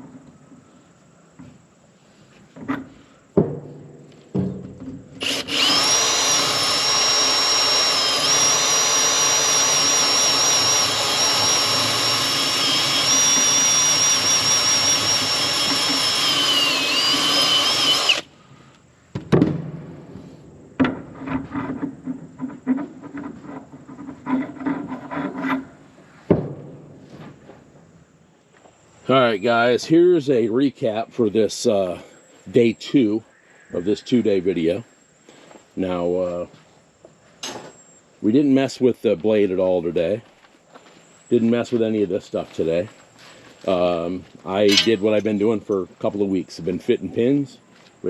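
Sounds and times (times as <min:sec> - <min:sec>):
power tool whining: 0:05.1 - 0:18.3.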